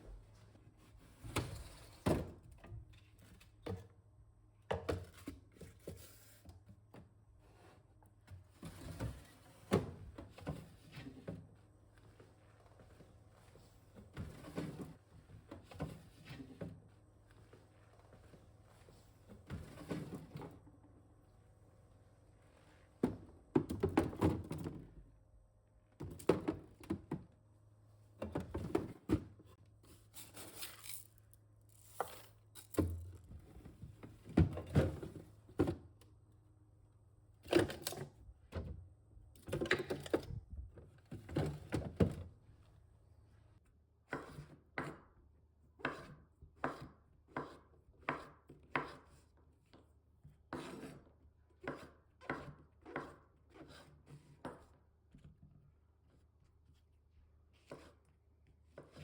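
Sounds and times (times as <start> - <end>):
knife chopping on wooden board: 45.8 - 49.0.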